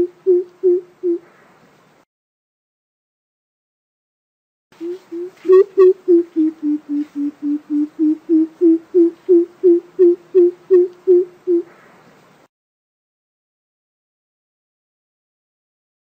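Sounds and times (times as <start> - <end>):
bird giving deep hollow hoots: 0.0 - 1.4, 4.8 - 11.8.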